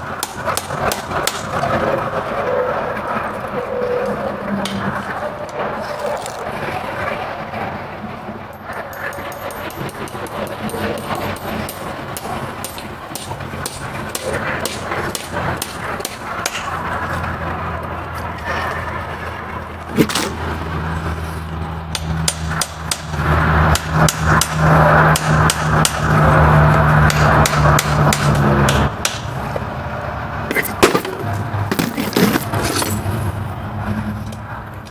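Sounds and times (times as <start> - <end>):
hammer knocking on horseshoe: 0.0 - 1.8, 8.7 - 17.1, 21.9 - 29.6.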